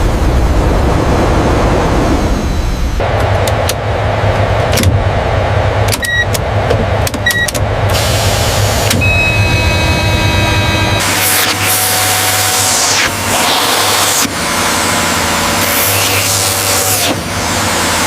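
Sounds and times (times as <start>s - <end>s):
mechanical motor hum: 0.0s - 18.0s
steady high whine: 0.0s - 18.0s
short high tones: 9.0s - 11.0s.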